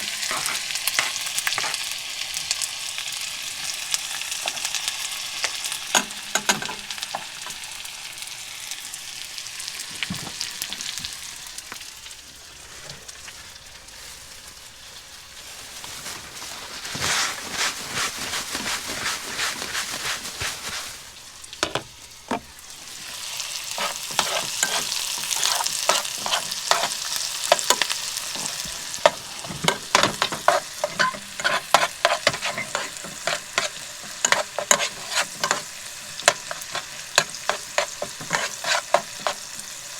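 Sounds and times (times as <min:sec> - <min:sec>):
utensil scraping a pan: 0:00.0 - 0:02.0, 0:23.1 - 0:39.9
food sizzling in a frying pan: 0:00.0 - 0:39.9.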